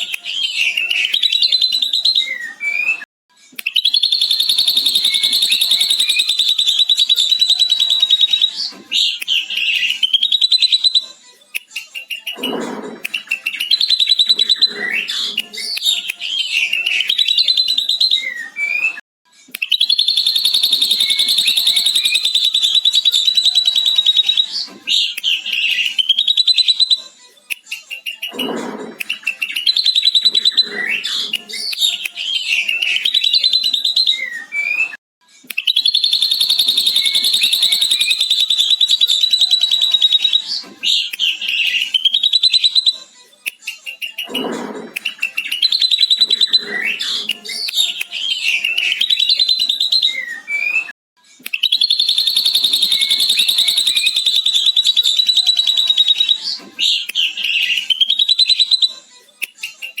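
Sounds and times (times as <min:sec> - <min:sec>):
bird warbled and whistled phrases: 0:00.0 - 0:03.0, 0:03.6 - 1:00.0
bird chattering trill: 0:03.8 - 0:08.4, 0:19.8 - 0:24.4, 0:35.7 - 0:40.4, 0:51.6 - 0:56.4.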